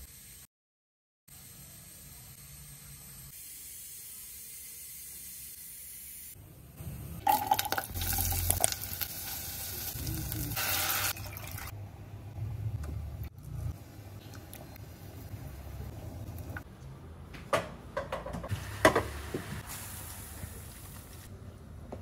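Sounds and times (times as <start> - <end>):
onion sizzling in a pot: 7.2 - 11.7, 18.5 - 21.3.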